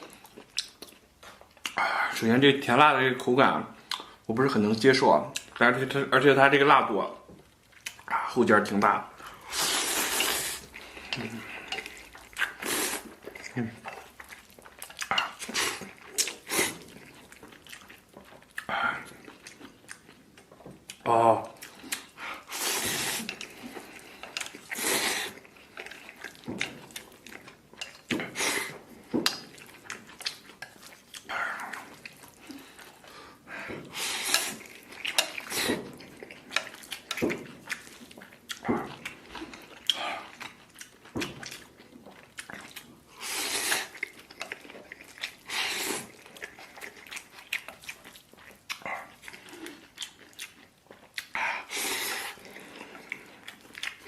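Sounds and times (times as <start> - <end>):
chewing: 0.0 - 2.3, 3.8 - 4.3, 7.2 - 54.0
slurping noodles: 9.2 - 18.0, 21.6 - 27.2, 29.6 - 38.2, 42.5 - 50.4, 51.2 - 54.0.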